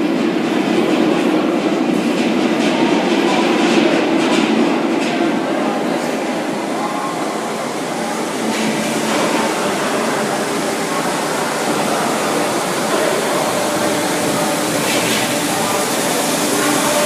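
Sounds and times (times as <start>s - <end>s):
electric train humming and rumbling: 0.0s - 17.0s.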